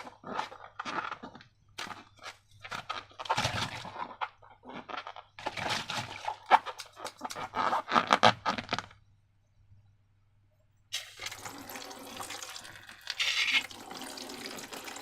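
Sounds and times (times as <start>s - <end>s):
slime squishing by hand: 0.0s - 8.9s.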